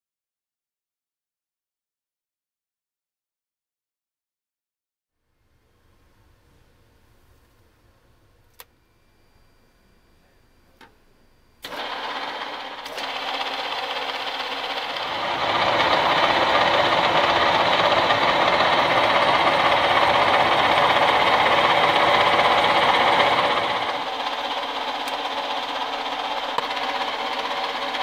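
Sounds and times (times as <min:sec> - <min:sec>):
metal lathe running: 0:11.6 - 0:28.0.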